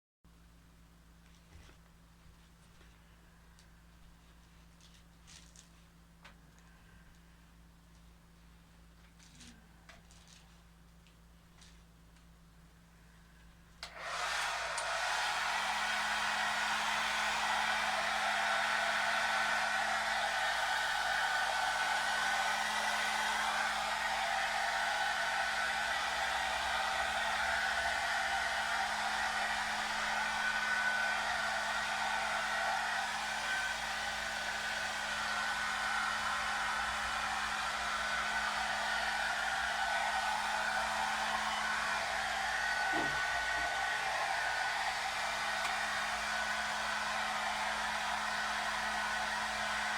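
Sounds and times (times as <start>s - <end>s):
hair dryer running: 13.8s - 49.9s.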